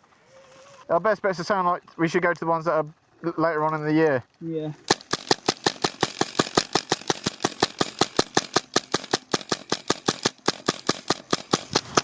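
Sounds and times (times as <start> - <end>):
airsoft gun automatic fire: 4.9 - 12.0.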